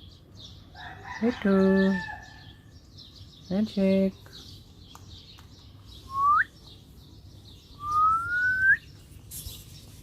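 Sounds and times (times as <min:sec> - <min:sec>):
rising whistles: 0:06.1 - 0:06.5, 0:07.8 - 0:08.8.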